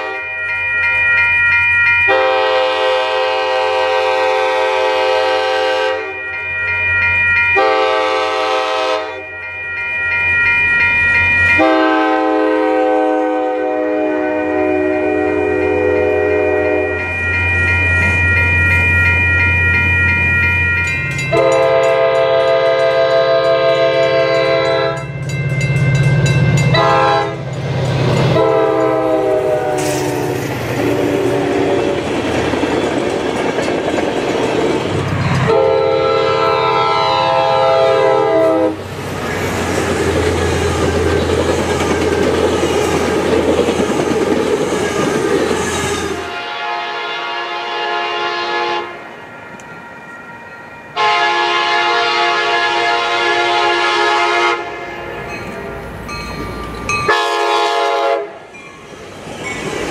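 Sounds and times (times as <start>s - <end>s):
train air horn blasts: 0.0s - 0.3s, 2.1s - 6.2s, 7.6s - 9.3s, 11.6s - 17.0s, 21.3s - 25.0s, 26.7s - 27.5s, 28.3s - 32.0s, 35.4s - 38.9s, 45.7s - 49.0s, 51.0s - 55.2s, 57.1s - 58.5s
wheels rumbling on rails: 15.0s - 46.4s, 58.3s - 59.9s.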